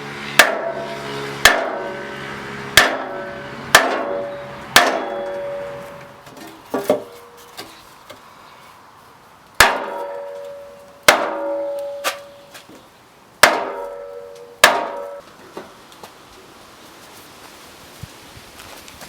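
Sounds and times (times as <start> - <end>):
hammer striking metal bumper: 0.3 - 7.4, 9.6 - 12.5, 13.4 - 15.2.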